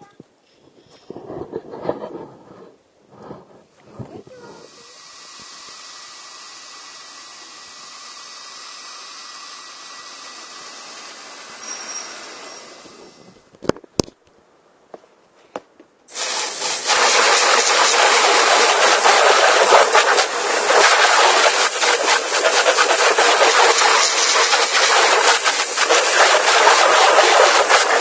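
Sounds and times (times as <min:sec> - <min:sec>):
rc truck running: 0:16.8 - 0:28.0.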